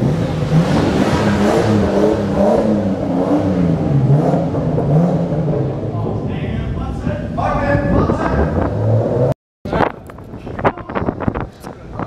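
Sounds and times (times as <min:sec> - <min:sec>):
car engine revving: 0:00.0 - 0:09.4.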